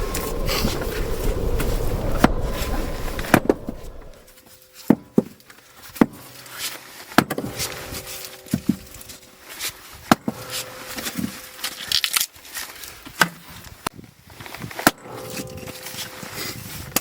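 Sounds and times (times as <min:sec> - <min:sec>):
wood fire crackling: 0:00.0 - 0:04.4
rushing rumbling noise: 0:00.0 - 0:04.5.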